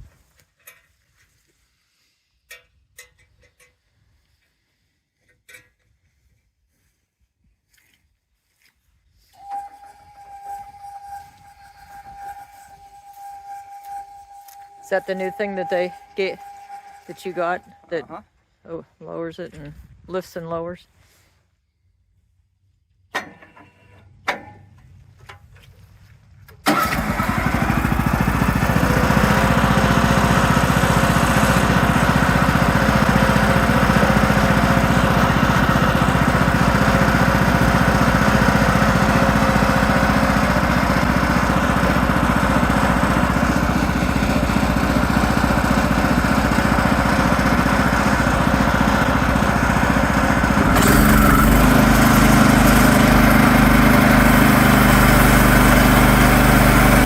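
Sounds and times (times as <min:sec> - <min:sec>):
sawmill engine running: 0:09.3 - 0:18.2, 0:26.6 - 0:57.0.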